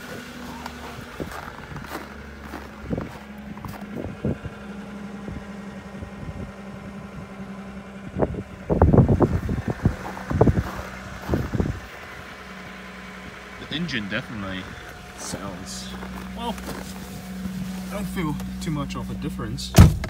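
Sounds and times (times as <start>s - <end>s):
car engine idling: 0.0s - 20.0s
wind buffeting on microphone: 0.8s - 4.6s, 5.2s - 7.4s, 8.0s - 11.9s.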